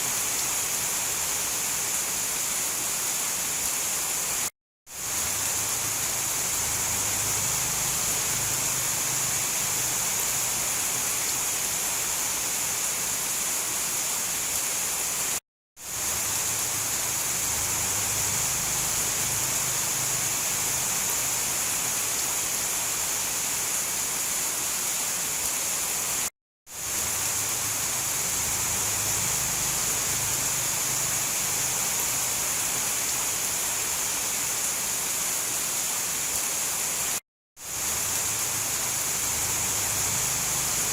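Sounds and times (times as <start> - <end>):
heavy rain hiss: 0.0 - 40.9.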